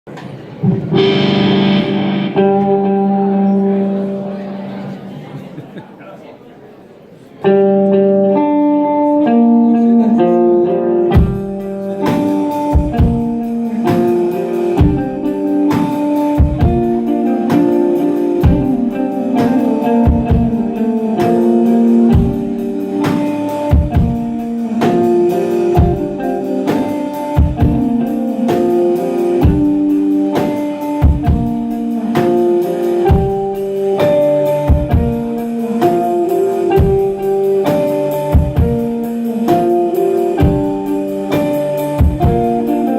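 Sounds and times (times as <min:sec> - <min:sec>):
picked guitar riff: 0:00.6 - 0:05.3, 0:07.4 - 0:42.9
drum kit beat: 0:00.9 - 0:03.1, 0:11.0 - 0:42.9.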